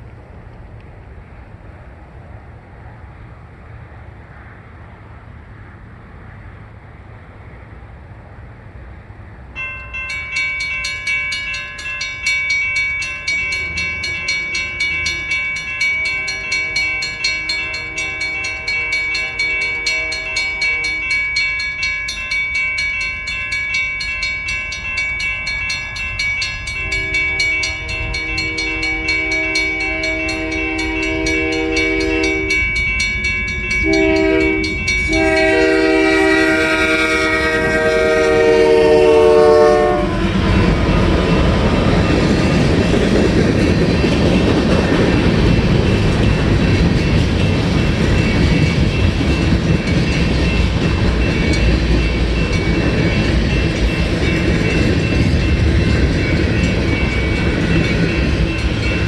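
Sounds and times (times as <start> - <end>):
freight train rolling past: 0.0 - 59.0
wheels clickety-clack on rails: 0.0 - 59.0
locomotive air horn blasts: 16.0 - 21.2, 26.8 - 32.6, 33.8 - 40.9.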